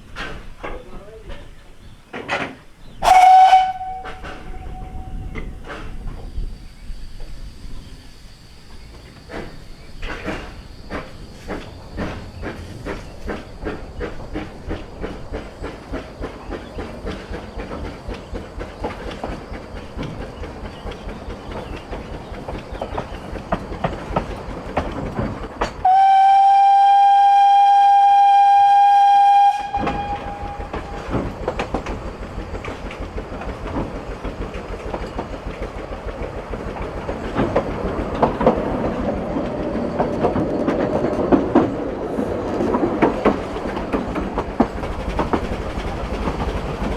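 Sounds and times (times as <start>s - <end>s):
wheels clicking over rail joints: 0.0s - 26.0s, 26.6s - 46.9s
steam train chuffing: 0.0s - 46.9s
steam whistle blast: 3.0s - 5.5s, 25.8s - 31.1s.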